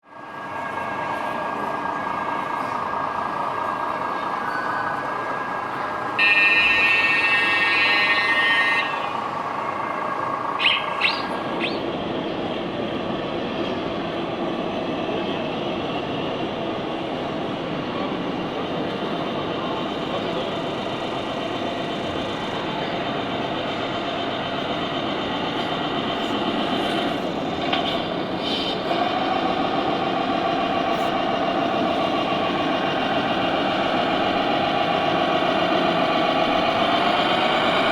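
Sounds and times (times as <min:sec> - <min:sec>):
model truck engine sound: 0:05.6 - 0:12.0, 0:18.7 - 0:37.9
loud horn blast: 0:06.2 - 0:09.1.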